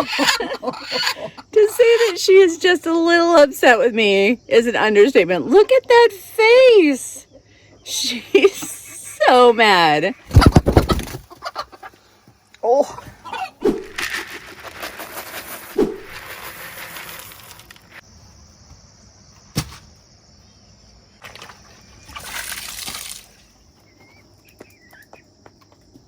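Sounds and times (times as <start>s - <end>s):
chicken wings flapping: 10.3s - 11.8s, 13.6s - 17.6s.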